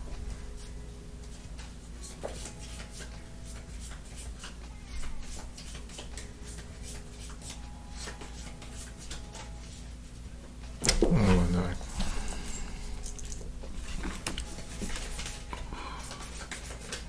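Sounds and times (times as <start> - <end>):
cards clicking and rubbing: 2.0 - 4.6, 14.2 - 17.0
steady low hum: 6.2 - 17.0.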